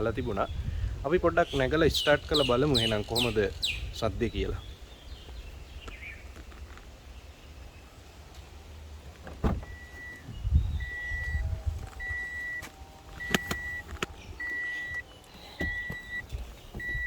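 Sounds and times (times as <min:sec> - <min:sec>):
car door shutting: 0:09.2 - 0:11.4, 0:12.0 - 0:17.0
dashboard warning chime beeping: 0:09.6 - 0:17.0.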